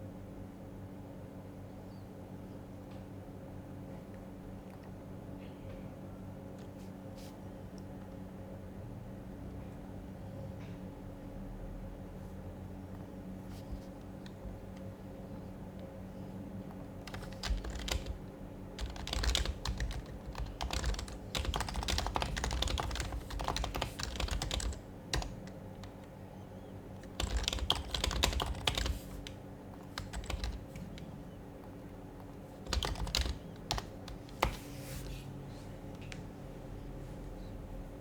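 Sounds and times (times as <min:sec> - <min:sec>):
quiet keyboard typing: 0:12.8 - 0:35.2.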